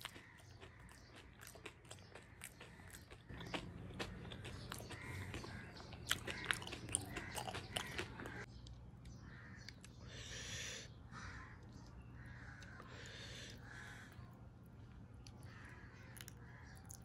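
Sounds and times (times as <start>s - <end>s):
person chewing crunchy food: 0.0s - 8.5s, 14.9s - 17.0s.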